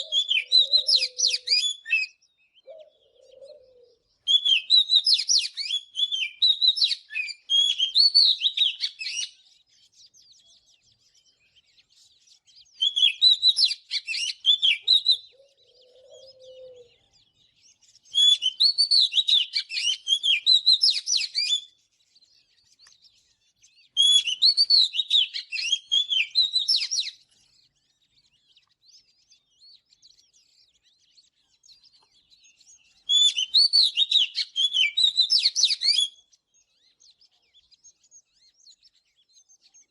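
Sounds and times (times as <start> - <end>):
bird singing whistled phrases: 0.0 - 9.4, 12.7 - 16.9, 18.1 - 21.8, 23.7 - 27.2, 31.8 - 36.9.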